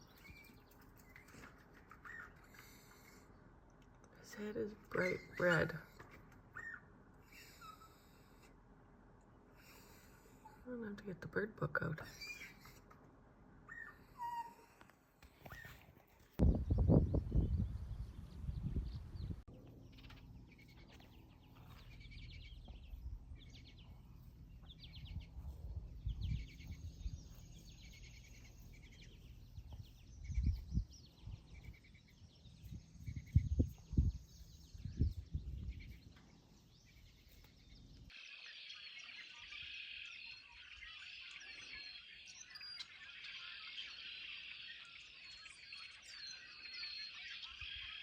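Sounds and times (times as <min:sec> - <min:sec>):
small birds chirping: 0:00.0 - 0:08.7, 0:09.5 - 0:48.0
low steady hum: 0:16.4 - 0:38.2.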